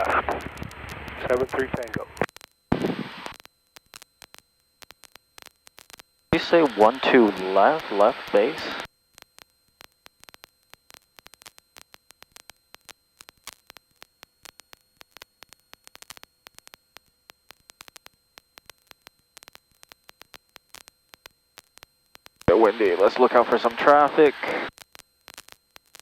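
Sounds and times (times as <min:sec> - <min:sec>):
faint steady hum: 0:00.0 - 0:26.0
static crackle: 0:00.0 - 0:26.0.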